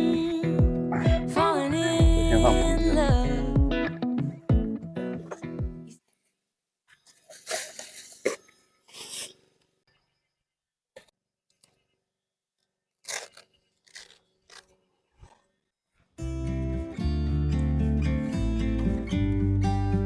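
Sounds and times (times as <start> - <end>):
tent gear crunching and rustling: 7.0 - 9.6, 13.0 - 15.6.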